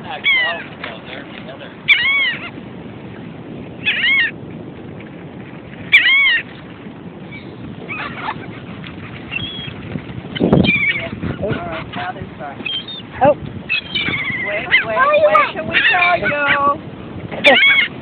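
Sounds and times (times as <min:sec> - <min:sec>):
seagulls calling: 0:00.0 - 0:02.6, 0:03.8 - 0:04.4, 0:05.8 - 0:06.6, 0:07.2 - 0:16.8, 0:17.4 - 0:18.0.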